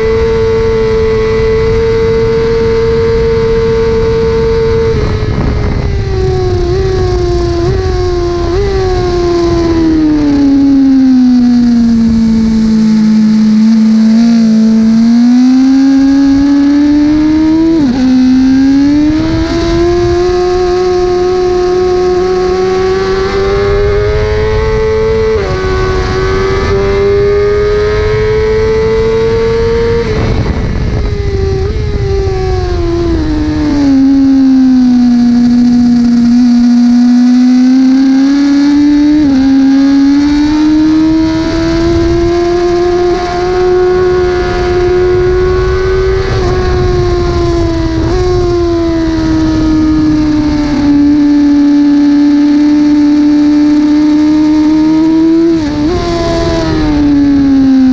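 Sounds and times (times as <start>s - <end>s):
motorcycle engine revving and shifting: 0.0s - 57.9s
wind rush on microphone: 0.0s - 57.9s.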